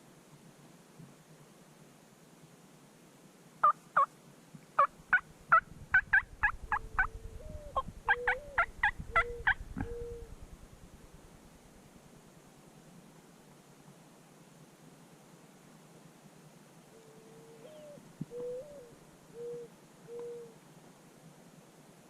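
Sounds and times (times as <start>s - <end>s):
wild turkey yelping: 5.1s - 10.5s.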